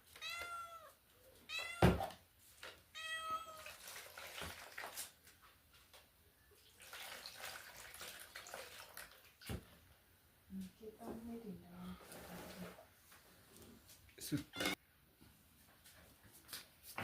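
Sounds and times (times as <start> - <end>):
cat meowing: 0.2 - 2.2, 2.9 - 3.7, 14.5 - 14.8.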